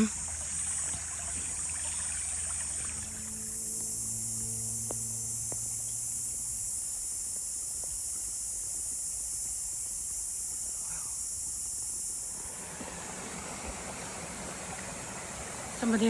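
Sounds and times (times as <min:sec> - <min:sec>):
creek water rushing: 0:00.0 - 0:04.1, 0:12.3 - 0:16.0
insect chorus drone: 0:00.0 - 0:16.0.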